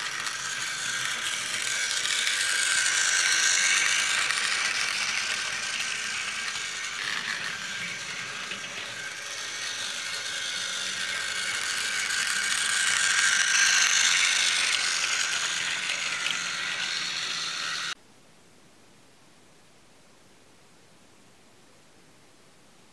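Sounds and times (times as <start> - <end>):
toy train motor whirring: 0.0 - 18.0.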